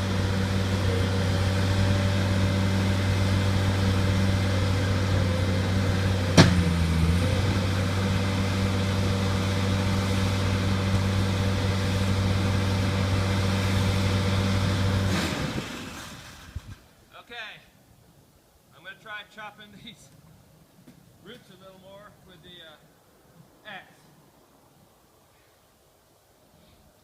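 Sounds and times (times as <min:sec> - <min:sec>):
loader engine running steadily: 0:00.0 - 0:16.7
sharp knock: 0:06.4 - 0:06.7.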